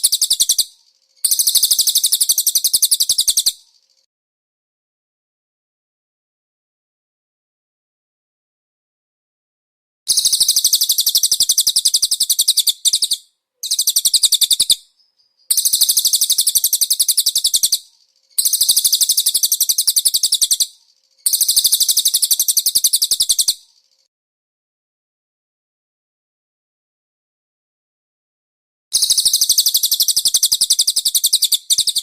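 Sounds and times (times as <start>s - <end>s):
songbird trilling: 0.0s - 4.0s, 10.1s - 24.0s, 29.0s - 32.0s.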